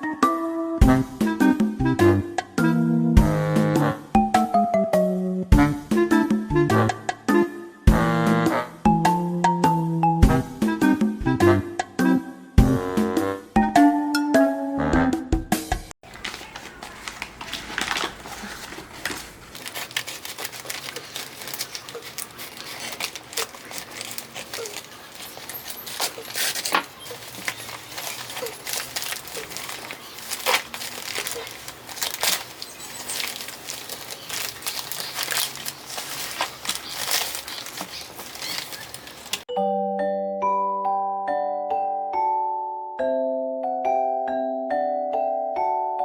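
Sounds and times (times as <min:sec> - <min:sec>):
packaging crinkling and crackling: 0:16.0 - 0:39.5.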